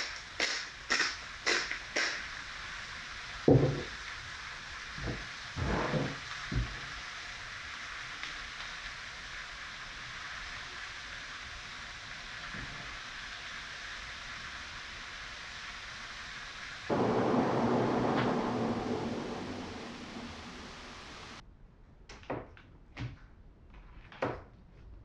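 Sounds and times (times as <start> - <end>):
vegetables and liver sizzling in pan: 0.0 - 21.4.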